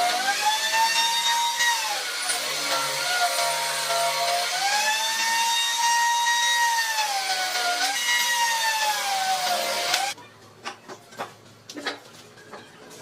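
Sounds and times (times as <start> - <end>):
power tool cutting wood: 0.0 - 10.2.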